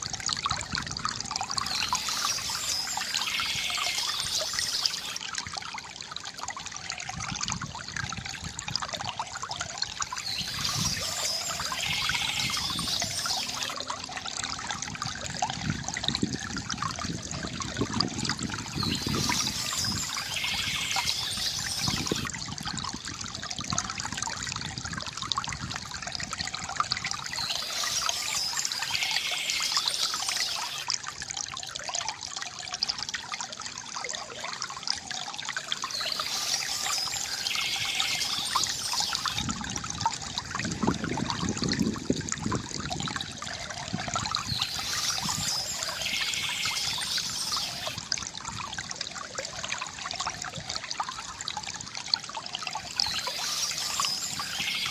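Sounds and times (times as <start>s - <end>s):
fountain water trickling: 0.0s - 54.9s
birds chirping: 1.6s - 5.2s, 10.1s - 13.8s, 18.8s - 22.3s, 27.3s - 30.8s, 35.8s - 39.4s, 44.4s - 48.0s, 52.9s - 54.9s.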